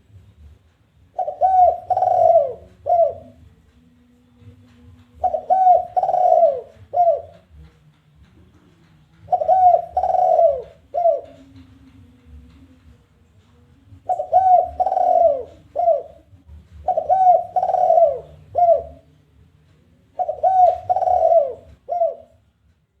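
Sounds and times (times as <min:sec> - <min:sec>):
dove cooing: 0:01.1 - 0:03.5, 0:05.2 - 0:07.7, 0:09.2 - 0:12.0, 0:14.0 - 0:19.1, 0:20.2 - 0:22.4.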